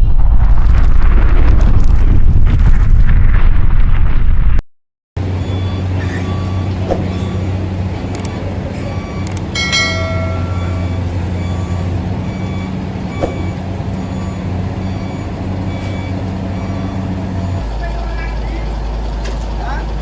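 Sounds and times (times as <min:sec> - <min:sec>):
heavy diesel engine running: 0:05.2 - 0:20.0
metal clang: 0:09.6 - 0:11.0.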